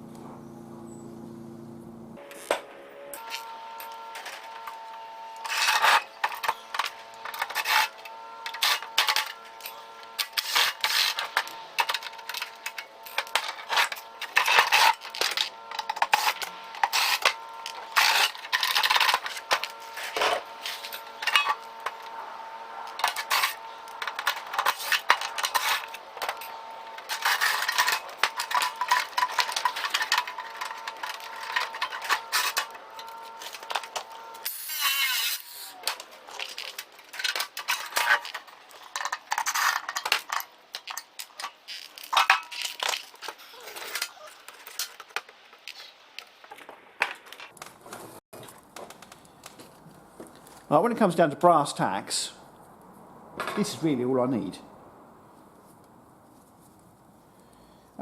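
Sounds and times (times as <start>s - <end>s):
steady hum: 0.0s - 39.1s
metal tools clinking and scraping: 3.2s - 22.2s, 22.8s - 47.6s.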